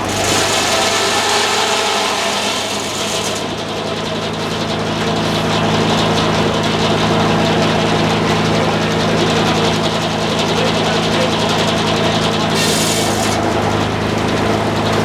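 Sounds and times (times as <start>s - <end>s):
blade cutting wood: 0.0s - 5.4s, 11.5s - 15.0s
sawmill engine running: 0.0s - 15.0s.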